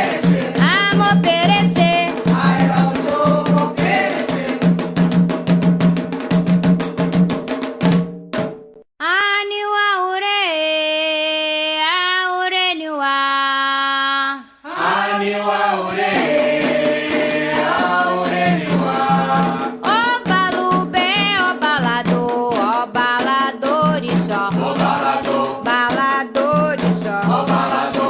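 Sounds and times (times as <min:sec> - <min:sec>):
person singing unaccompanied: 0:00.0 - 0:04.4, 0:09.0 - 0:28.0
group of voices singing: 0:00.0 - 0:04.8, 0:13.8 - 0:28.0
drums: 0:00.0 - 0:08.8, 0:16.1 - 0:28.0.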